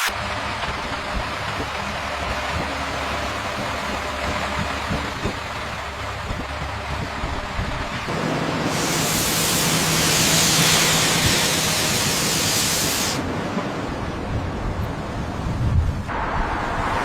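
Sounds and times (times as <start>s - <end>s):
loud steady hiss: 8.1s - 13.3s.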